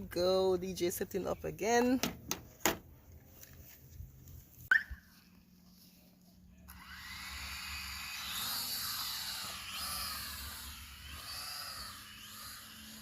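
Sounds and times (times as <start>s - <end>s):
drone propellers buzzing: 6.7s - 13.0s.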